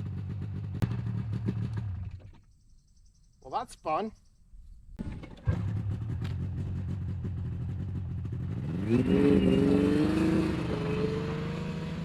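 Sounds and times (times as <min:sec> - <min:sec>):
snowmobile engine idling and revving: 0:00.0 - 0:02.4, 0:05.0 - 0:12.0.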